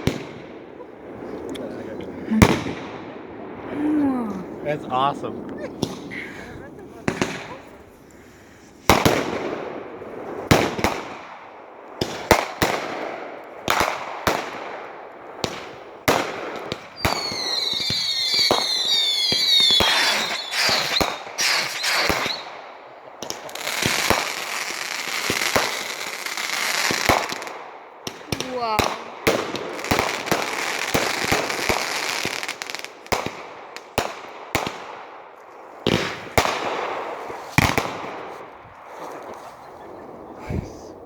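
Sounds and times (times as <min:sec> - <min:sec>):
fireworks bangs: 0:00.0 - 0:08.0, 0:08.8 - 0:41.0
rapid firework bursts: 0:02.2 - 0:03.1, 0:05.4 - 0:11.4, 0:12.0 - 0:35.2, 0:35.8 - 0:39.6
firework whistles: 0:16.9 - 0:22.5.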